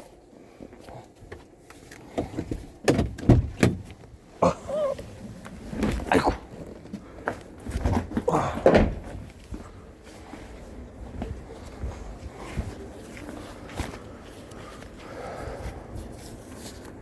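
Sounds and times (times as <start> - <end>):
knocks and thuds: 7.7 - 9.7.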